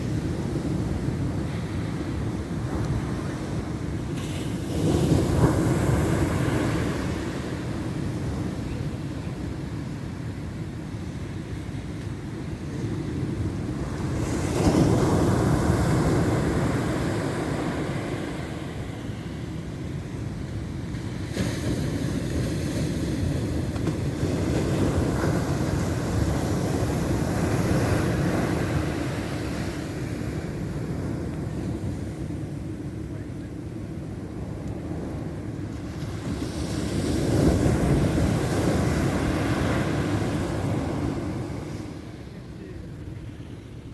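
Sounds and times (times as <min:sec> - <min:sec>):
ocean wave breaking: 0:00.0 - 0:08.5, 0:34.8 - 0:43.3
ocean waves washing in: 0:00.0 - 0:43.9
wind rumble on microphone: 0:00.0 - 0:43.9.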